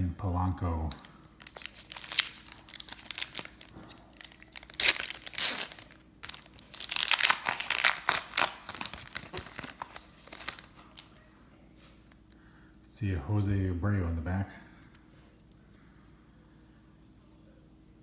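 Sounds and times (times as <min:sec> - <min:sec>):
foil wrapper tearing and crinkling: 0:01.0 - 0:11.1.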